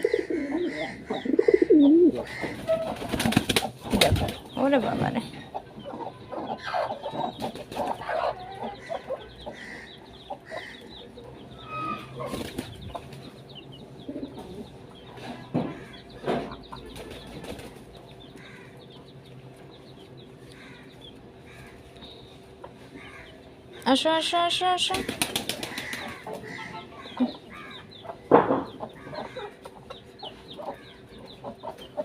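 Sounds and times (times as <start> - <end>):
pigeons cooing: 0.0 - 4.4, 25.0 - 32.0
birds scuffling: 0.0 - 32.0
pigeon wings flapping: 3.0 - 4.4, 24.9 - 26.2.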